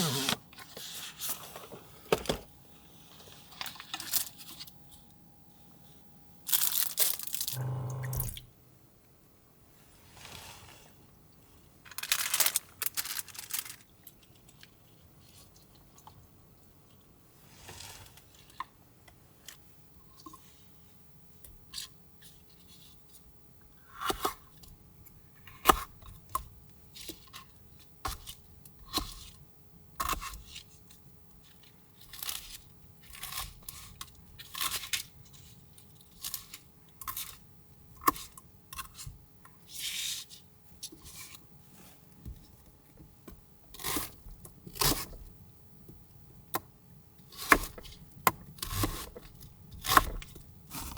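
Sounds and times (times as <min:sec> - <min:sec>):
faint steady hum: 0:00.0 - 0:50.9
tearing and crunching sounds: 0:06.5 - 0:07.6, 0:11.9 - 0:14.1.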